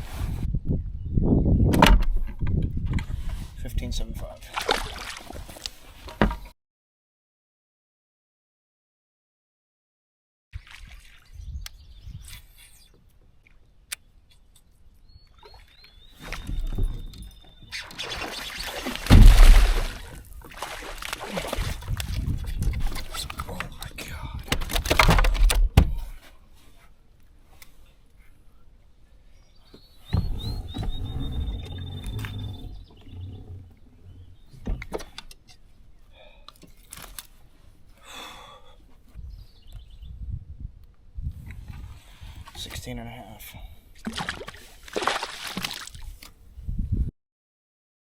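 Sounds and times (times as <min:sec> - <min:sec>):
songbird singing: 0:11.2 - 0:19.7, 0:29.1 - 0:36.8, 0:39.2 - 0:40.4
low rumbling: 0:19.1 - 0:20.3, 0:30.1 - 0:34.9
bird chirping: 0:29.3 - 0:36.0.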